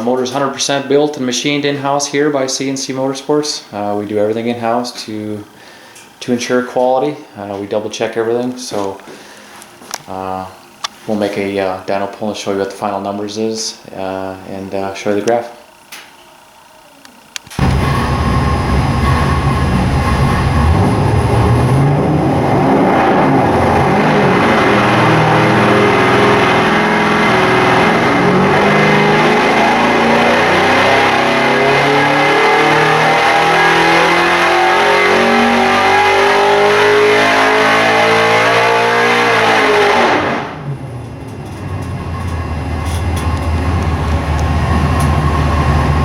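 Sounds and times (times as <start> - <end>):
engine revving on dyno: 17.5 - 46.0.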